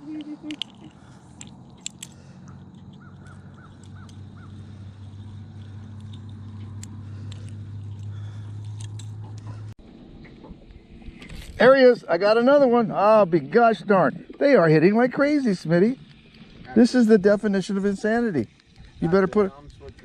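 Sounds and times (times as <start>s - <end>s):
steady low hum: 0.0s - 20.0s
light clicks: 0.2s - 9.6s.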